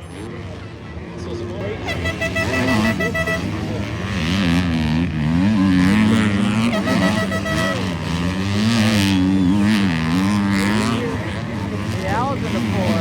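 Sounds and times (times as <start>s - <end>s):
motocross engines revving: 1.6s - 13.0s
horn-like tone: 1.8s - 9.7s.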